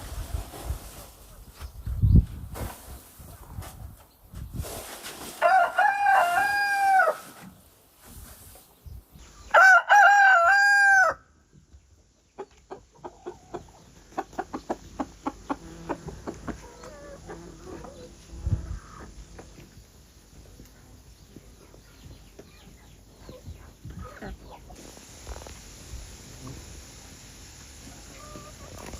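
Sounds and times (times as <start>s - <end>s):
rooster crowing: 5.4s - 7.2s, 9.5s - 11.3s.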